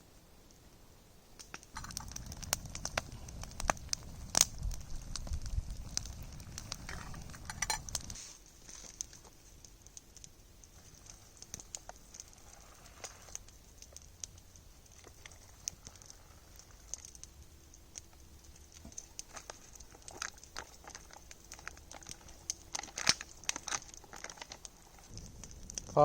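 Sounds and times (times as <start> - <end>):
campfire crackling: 0.0 - 26.0
low rumble: 25.1 - 26.0.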